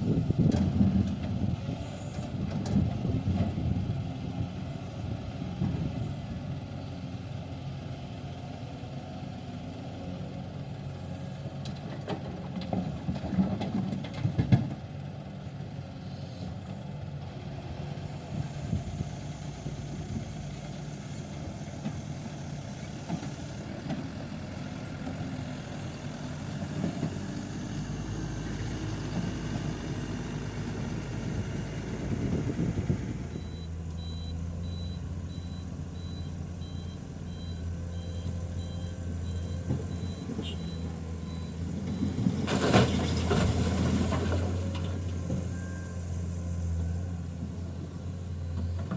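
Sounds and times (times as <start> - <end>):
diesel truck engines idling: 0.0 - 48.9
two-tone reversing alarm beeping: 33.4 - 42.1.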